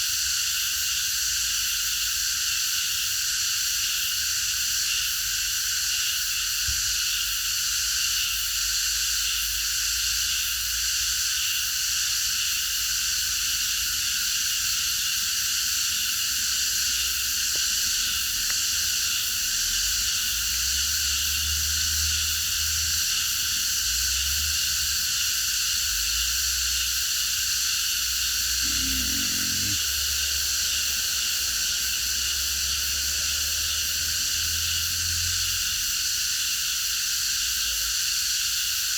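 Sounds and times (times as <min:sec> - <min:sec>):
cicadas buzzing: 0:00.0 - 0:38.9.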